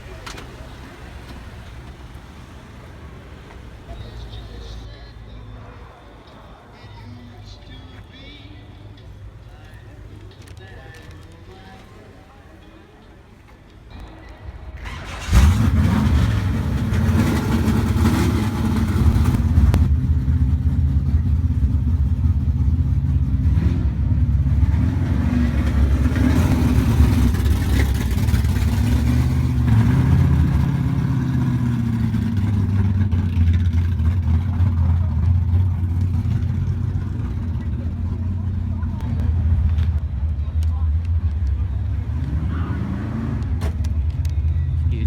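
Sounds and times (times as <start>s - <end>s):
car engine revving: 14.5s - 45.0s.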